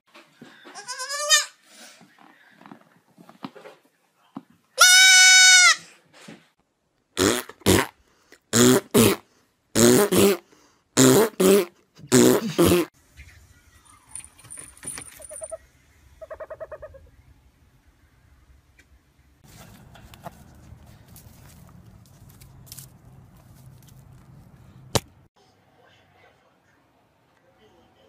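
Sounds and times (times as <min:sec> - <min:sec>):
goat kid bleating: 0:00.8 - 0:01.6, 0:04.8 - 0:05.8.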